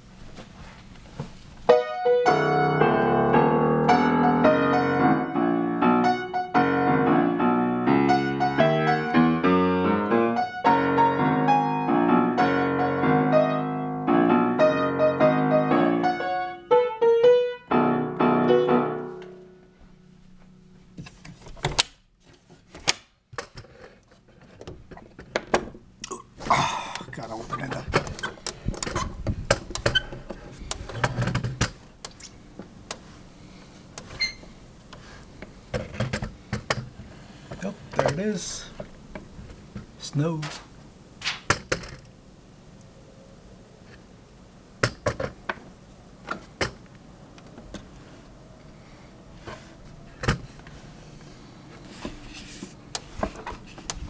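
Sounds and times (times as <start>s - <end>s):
piano music: 1.7s - 20.9s.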